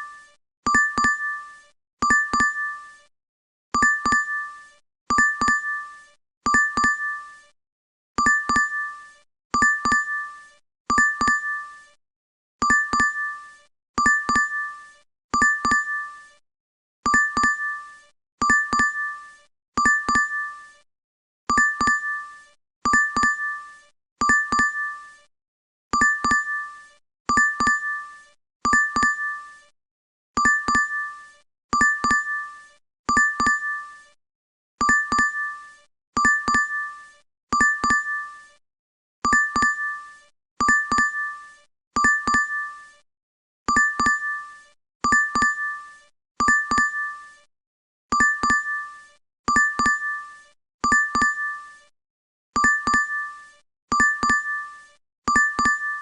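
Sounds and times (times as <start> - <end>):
two-tone notification chime: 0.7 - 1.3, 43.8 - 44.2, 46.4 - 47.0, 48.2 - 48.7, 50.9 - 51.5, 55.3 - 56.0.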